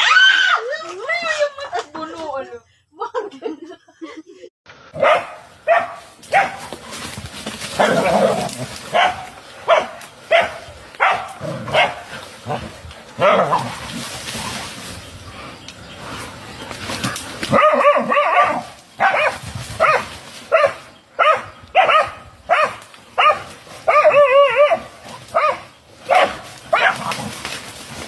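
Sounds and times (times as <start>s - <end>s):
dogs barking: 4.9s - 7.1s, 7.7s - 13.8s, 17.1s - 27.3s
dog yelping: 17.5s - 27.1s.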